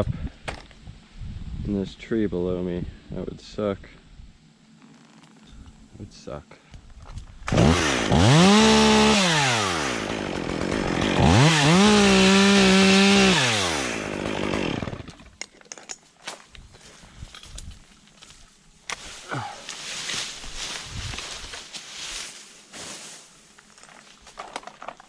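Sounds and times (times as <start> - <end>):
chainsaw cutting wood: 7.5 - 15.4.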